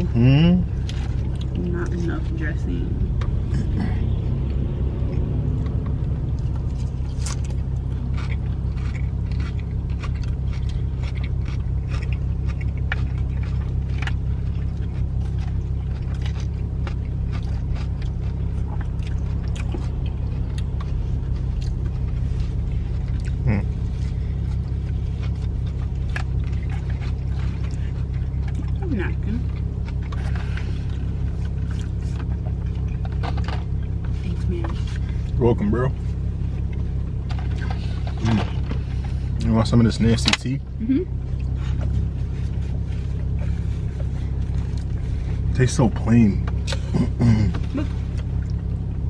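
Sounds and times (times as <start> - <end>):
car engine idling: 0.0 - 49.0
eating salad from a bowl: 5.6 - 28.8.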